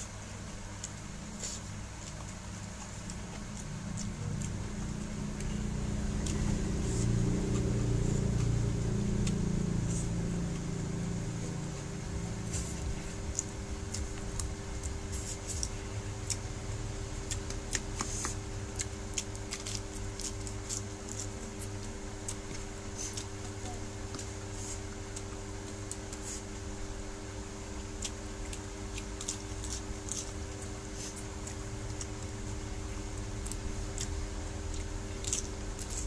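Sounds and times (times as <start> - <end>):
steady low hum: 0.0 - 36.0
chewing with mouth clicks: 0.6 - 36.0
low rumble: 3.6 - 15.0.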